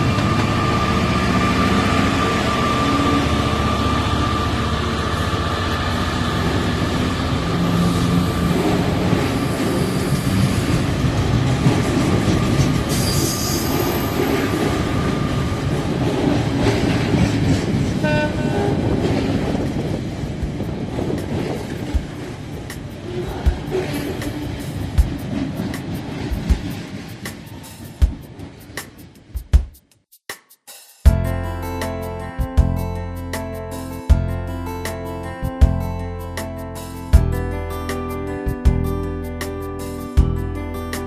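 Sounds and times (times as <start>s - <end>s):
train running on track: 0.0s - 29.6s
train horn blast: 18.0s - 19.1s.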